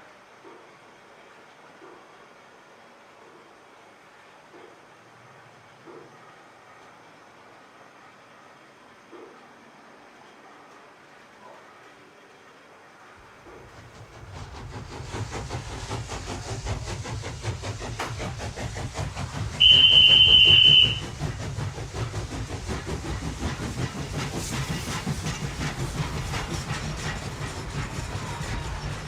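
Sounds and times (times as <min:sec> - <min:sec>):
model train rumble: 0:12.6 - 0:29.0
wheels clicking on track: 0:13.2 - 0:29.0
high-pitched train horn: 0:19.6 - 0:21.2.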